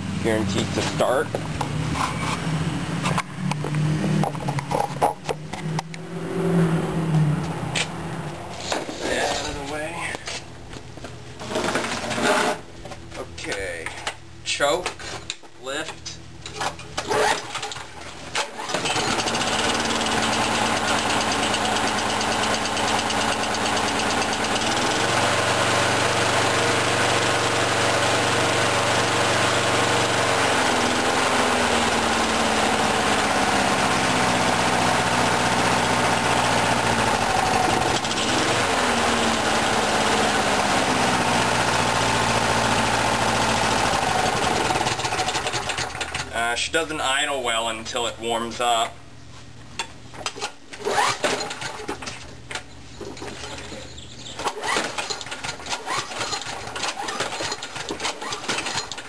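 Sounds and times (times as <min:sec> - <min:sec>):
lawnmower engine pull-start: 0:16.6 - 0:46.5, 0:50.2 - 0:59.0
lawnmower engine running unevenly: 0:18.5 - 0:46.5.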